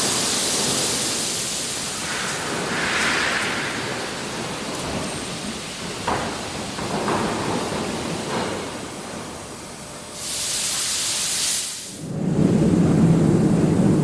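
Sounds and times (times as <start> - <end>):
venting gas hiss: 0.0 - 14.0.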